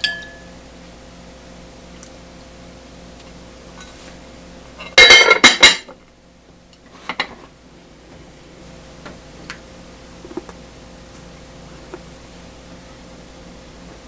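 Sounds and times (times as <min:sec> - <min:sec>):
dishes clattering: 0:00.0 - 0:00.5, 0:04.8 - 0:06.0, 0:06.9 - 0:07.5.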